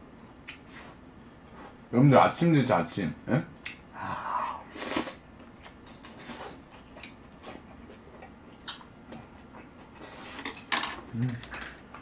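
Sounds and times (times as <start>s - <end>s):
wet chewing clicks and smacks: 5.4s - 9.9s.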